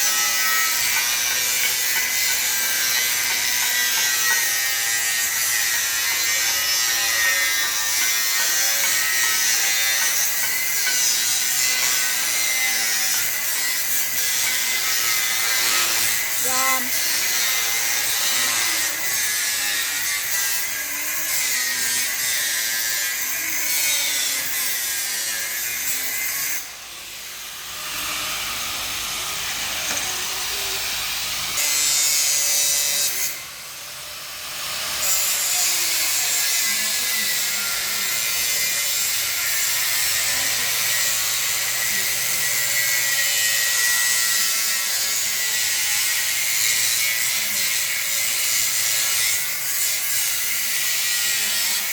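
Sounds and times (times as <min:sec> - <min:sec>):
grinder cutting steel: 0:00.0 - 0:51.9.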